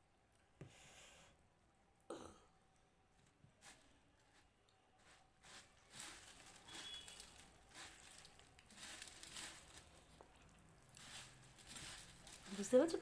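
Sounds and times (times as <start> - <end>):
puffed rice crunching: 5.0 - 13.0.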